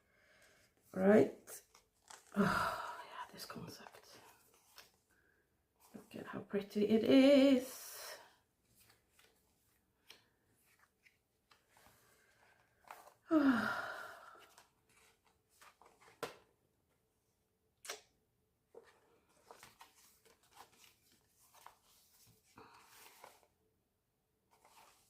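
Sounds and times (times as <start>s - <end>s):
breathy sigh: 2.3s - 3.2s, 13.3s - 14.6s.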